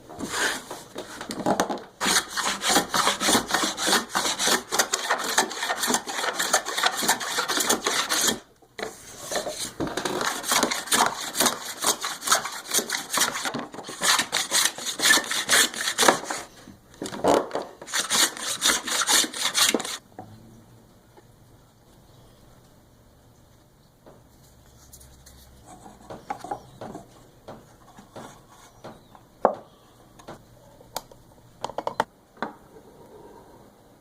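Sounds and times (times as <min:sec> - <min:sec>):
sanding wood by hand: 0:02.0 - 0:08.4, 0:10.2 - 0:16.5, 0:17.9 - 0:20.0.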